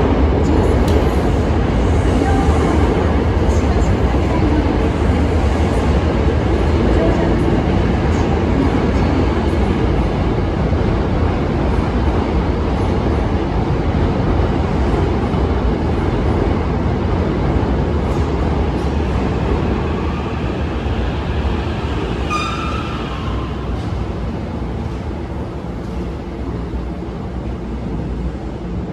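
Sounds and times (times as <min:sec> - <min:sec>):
electric train rumbling on rails: 0:00.0 - 0:28.9
high-pitched squeal: 0:19.4 - 0:24.3.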